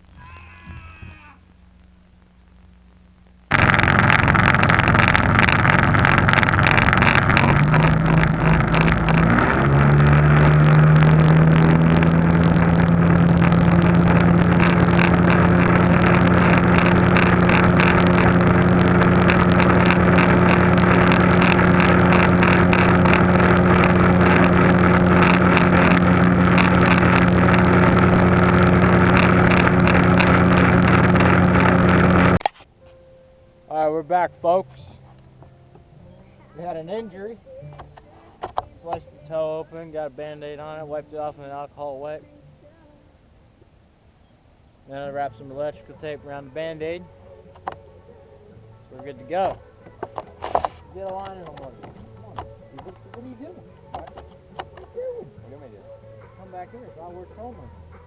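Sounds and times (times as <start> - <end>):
outboard motor running: 3.5 - 32.4, 49.0 - 58.0.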